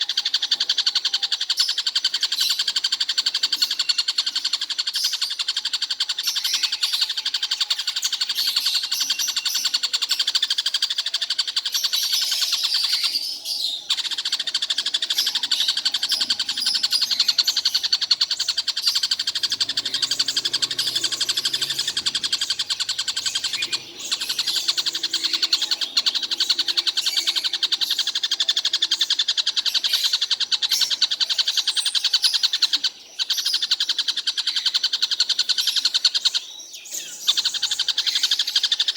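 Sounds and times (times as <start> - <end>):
kingfisher rattling chatter: 13.9 - 31.4.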